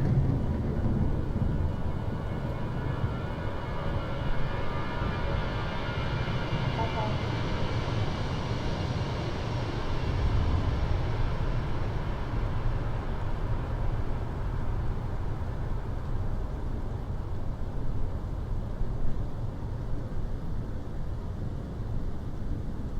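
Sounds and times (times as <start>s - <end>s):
airliner rumble: 0.0s - 22.9s.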